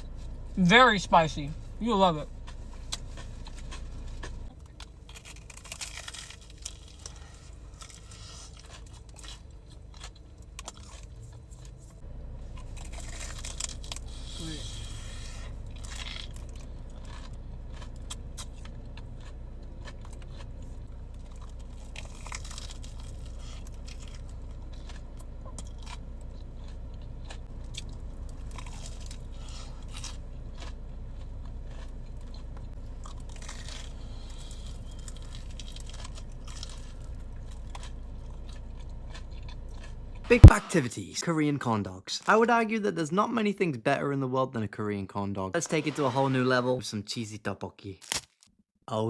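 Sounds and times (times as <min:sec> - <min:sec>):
steady low hum: 0:00.0 - 0:42.1
crunching and chewing: 0:01.2 - 0:40.7
crisp crackles: 0:03.6 - 0:11.8.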